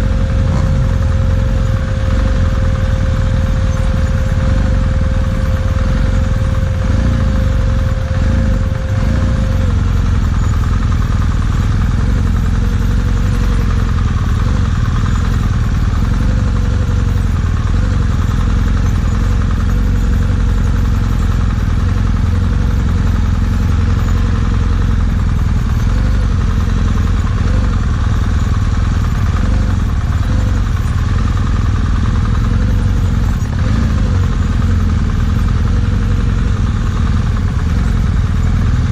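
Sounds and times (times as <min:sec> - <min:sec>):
motorcycle engine rumbling: 0:00.0 - 0:38.9.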